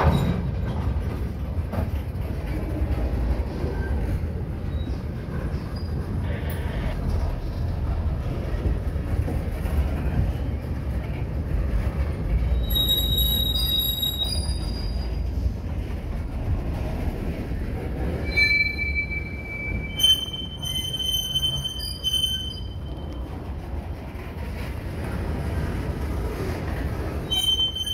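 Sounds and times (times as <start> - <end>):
train wheels rumbling on rail: 0.0 - 27.9
high-pitched wheel squeal: 12.5 - 15.3, 18.2 - 23.1, 27.2 - 27.9.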